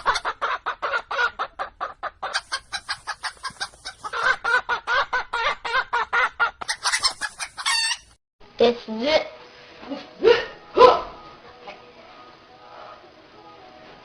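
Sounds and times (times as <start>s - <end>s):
chicken clucking: 0.0s - 8.2s.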